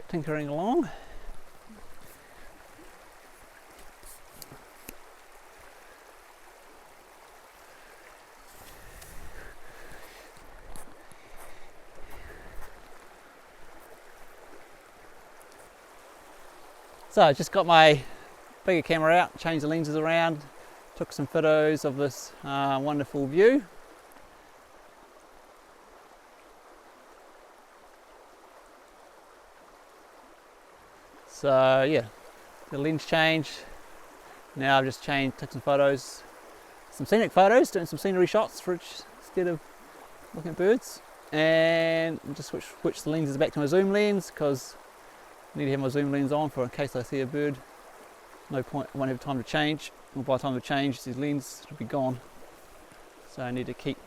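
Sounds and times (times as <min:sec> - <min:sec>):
stream running water: 0:00.0 - 0:54.0
faint clicks: 0:03.7 - 0:05.1, 0:15.4 - 0:15.7.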